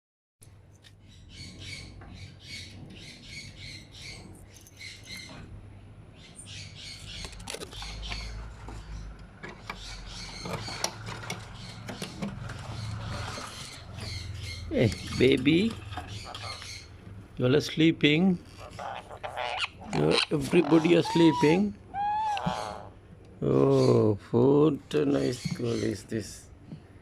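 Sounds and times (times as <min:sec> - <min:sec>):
parrots chirping softly: 0:06.2 - 0:17.0, 0:18.4 - 0:23.0
clicks and scratching: 0:07.2 - 0:14.2.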